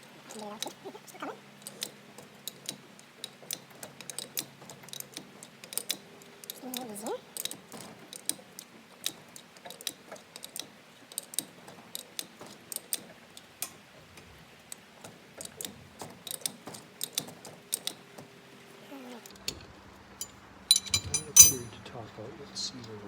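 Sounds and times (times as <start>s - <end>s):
wrench clicking on a nut: 20.7s - 21.7s.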